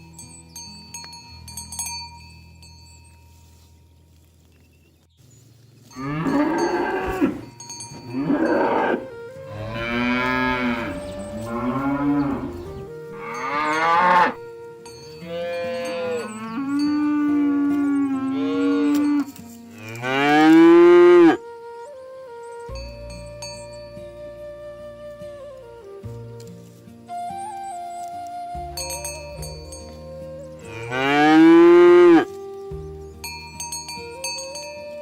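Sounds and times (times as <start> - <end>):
cattle mooing: 6.0 - 14.4, 15.3 - 21.4, 30.7 - 32.3.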